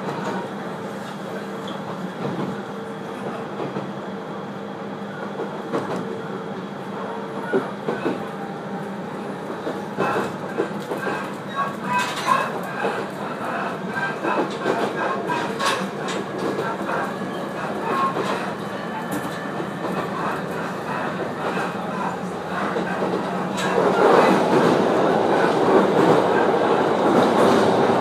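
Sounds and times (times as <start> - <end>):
train motor hum: 0.0 - 28.0
clickety-clack of wheels: 1.0 - 2.6, 5.4 - 6.1, 7.4 - 8.4, 9.4 - 28.0.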